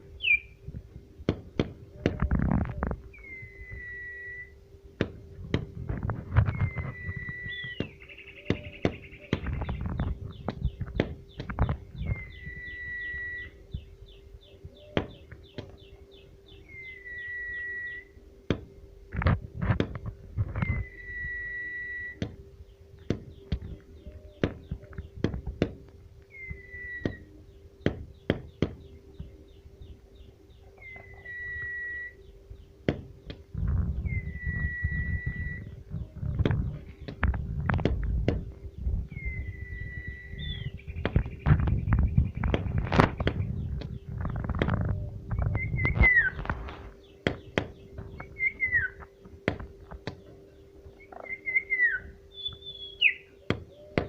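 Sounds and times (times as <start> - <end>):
low steady hum: 0.0 - 54.0
bird whistled call: 0.2 - 0.6, 1.9 - 4.6, 6.5 - 18.2, 20.5 - 22.3, 23.3 - 25.0, 26.3 - 28.0, 30.2 - 32.4, 34.0 - 36.1, 39.1 - 49.0, 50.9 - 54.0
sharp clicks and knocks: 7.7 - 12.2, 41.0 - 46.6.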